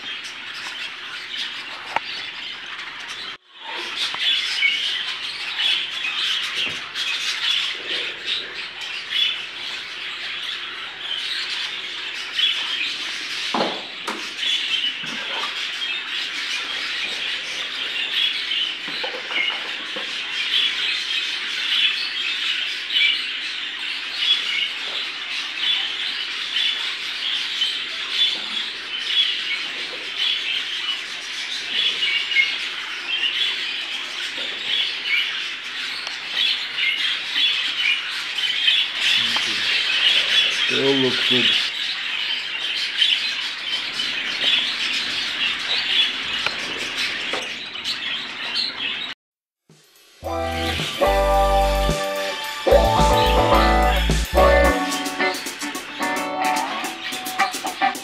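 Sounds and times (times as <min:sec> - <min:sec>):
budgerigars chattering: 0:00.0 - 0:49.1, 0:52.6 - 0:58.0.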